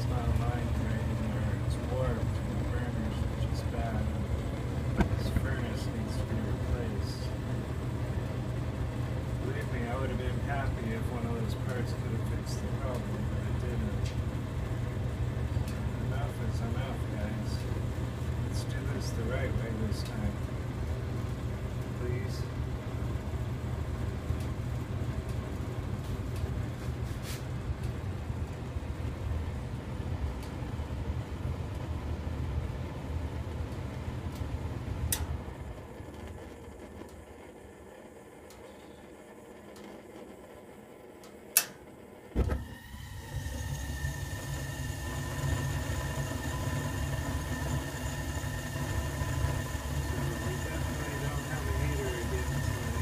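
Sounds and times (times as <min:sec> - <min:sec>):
faint whine: 0:00.0 - 0:53.0
gas furnace low rumble: 0:00.0 - 0:53.0
sharp clicks: 0:41.2 - 0:41.8.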